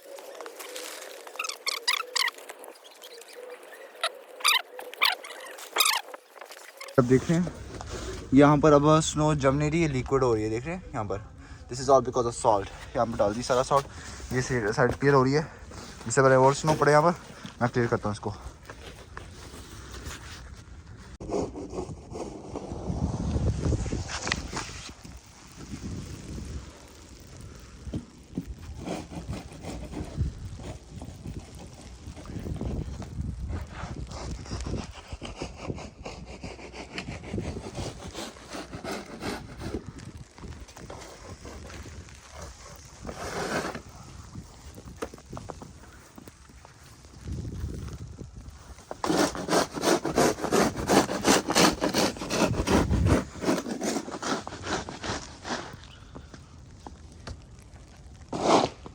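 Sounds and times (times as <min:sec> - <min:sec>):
wind buffeting microphone: 0:20.8 - 0:49.0, 0:50.0 - 0:53.6
snow shovel scraping: 0:40.7 - 0:45.6, 0:48.9 - 0:55.9, 0:58.3 - 0:58.9.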